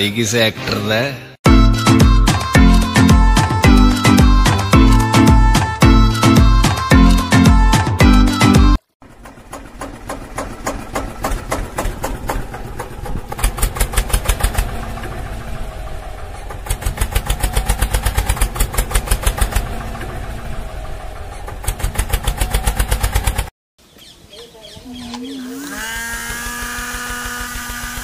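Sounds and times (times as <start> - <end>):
small motor running: 25.2 - 28.0.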